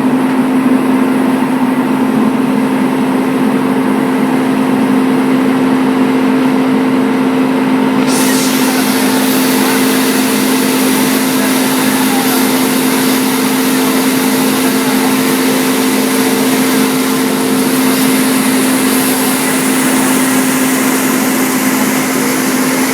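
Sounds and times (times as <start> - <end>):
belt sander running: 7.8 - 22.9.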